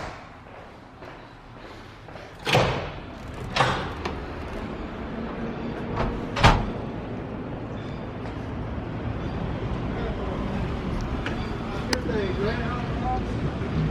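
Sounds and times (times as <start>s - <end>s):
steady low rumble: 2.8s - 11.8s.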